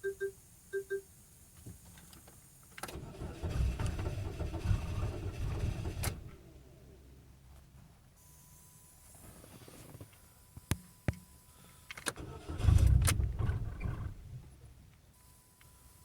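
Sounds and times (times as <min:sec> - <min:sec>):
starter cranking and engine firing: 0:02.8 - 0:06.3, 0:12.1 - 0:14.3.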